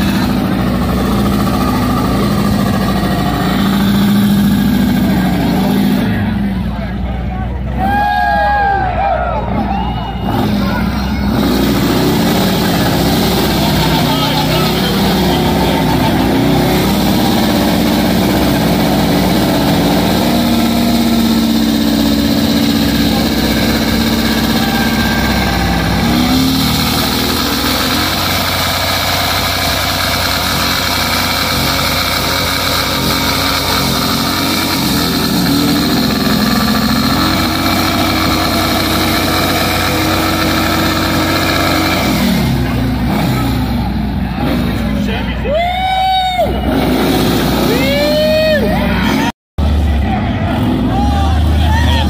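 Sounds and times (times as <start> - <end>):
motorcycle engine revving: 0.0 - 7.8, 9.5 - 45.2, 46.6 - 52.0.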